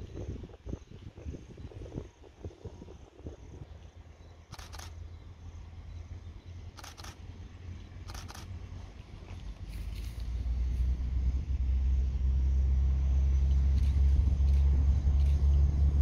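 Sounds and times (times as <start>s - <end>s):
train rumbling: 4.3s - 16.0s
sharp double clicks: 4.5s - 5.0s, 6.8s - 7.2s, 8.1s - 8.5s.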